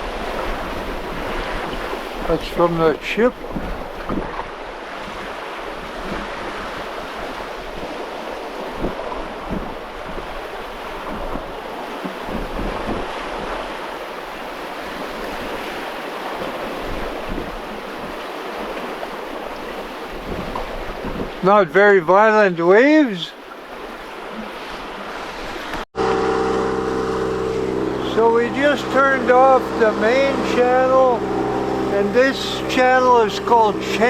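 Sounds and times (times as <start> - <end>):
water rushing along boat hull: 0.0 - 34.0
wind on microphone: 3.3 - 21.4.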